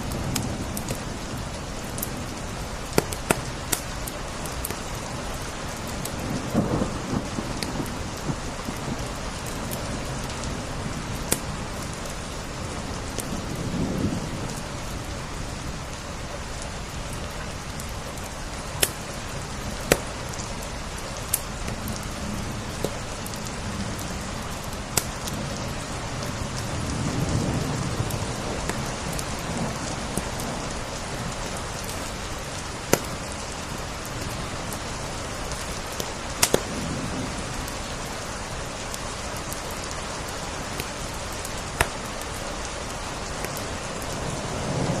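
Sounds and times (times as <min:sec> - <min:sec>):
steady rain: 0:00.0 - 0:45.0
wood fire crackling: 0:00.0 - 0:45.0.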